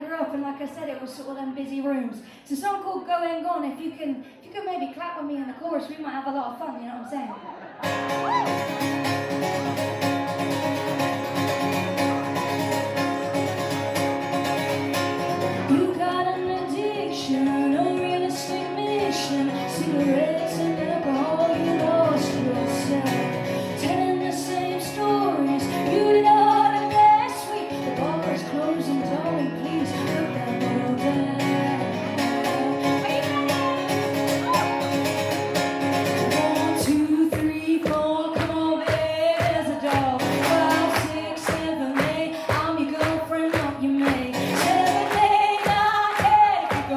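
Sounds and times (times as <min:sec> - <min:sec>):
woman singing: 0:15.4 - 0:35.1, 0:36.0 - 0:46.9
live band music: 0:32.2 - 0:36.6.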